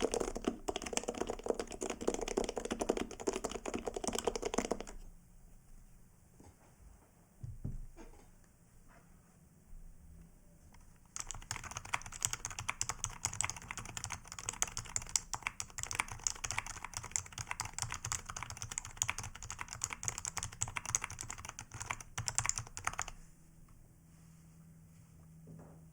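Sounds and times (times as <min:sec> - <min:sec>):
fast keyboard typing: 0:00.0 - 0:05.0, 0:11.0 - 0:23.2.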